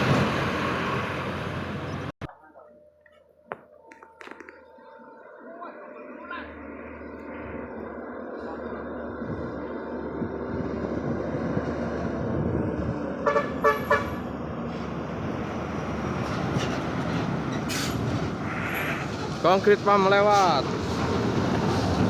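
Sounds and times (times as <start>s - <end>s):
heavy vehicle engine and tyres: 0.0s - 2.2s, 3.5s - 22.0s
vehicle horn toots: 13.2s - 14.2s.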